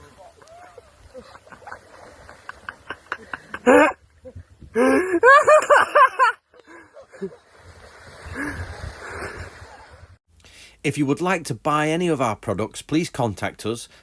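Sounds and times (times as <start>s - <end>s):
water splashing: 0.0s - 3.6s.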